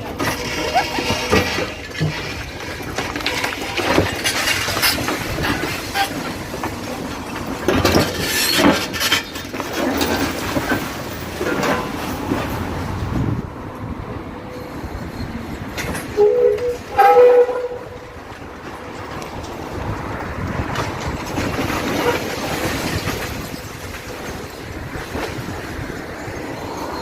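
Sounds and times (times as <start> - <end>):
train wheels clattering: 0.0 - 13.1, 14.8 - 27.0
two-tone train horn blasts: 16.1 - 18.2.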